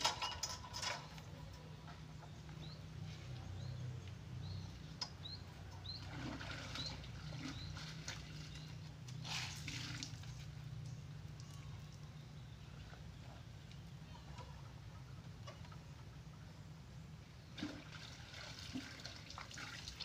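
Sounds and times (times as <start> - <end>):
bird chirping: 1.3 - 8.9.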